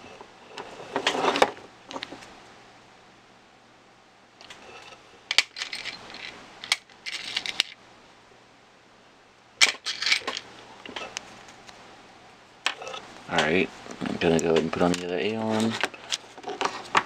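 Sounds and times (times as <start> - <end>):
parts and tools clicking: 5.3 - 7.8, 9.6 - 11.2.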